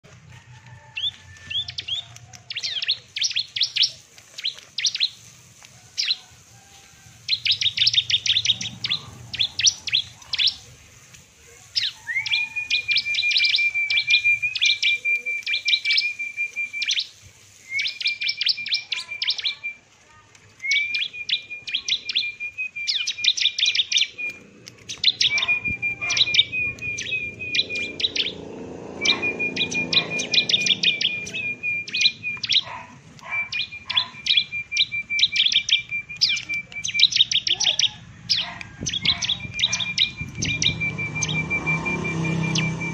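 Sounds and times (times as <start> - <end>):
songbird chipping song: 0.0 - 42.9
steady high whistle: 29.0 - 32.5, 39.6 - 42.9.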